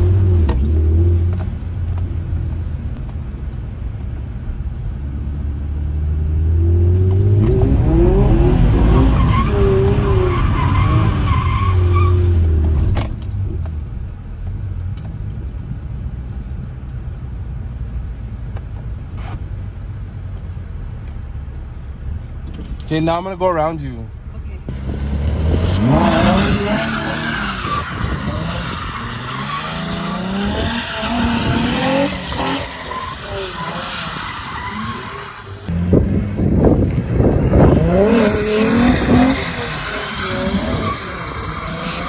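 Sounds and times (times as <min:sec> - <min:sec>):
car engine revving: 0:05.6 - 0:12.9, 0:24.7 - 0:42.0.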